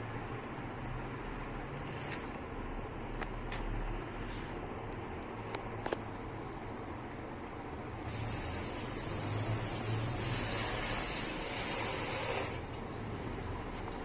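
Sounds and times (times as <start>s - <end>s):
spraying hiss: 8.0s - 12.6s.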